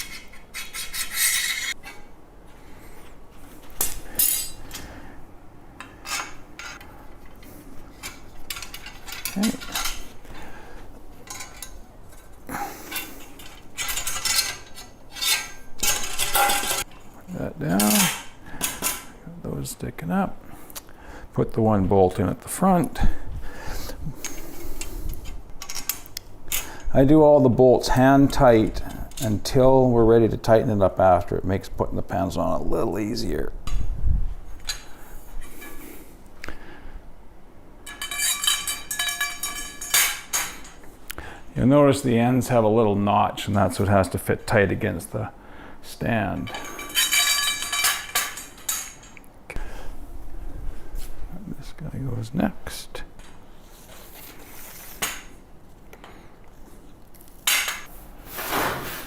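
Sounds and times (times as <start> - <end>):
metal parts clinking and scraping: 0.0 - 2.1, 2.8 - 4.9, 5.9 - 10.4, 11.2 - 17.1, 17.7 - 19.1, 24.2 - 26.7, 37.8 - 40.8, 46.4 - 49.2, 57.1 - 57.9.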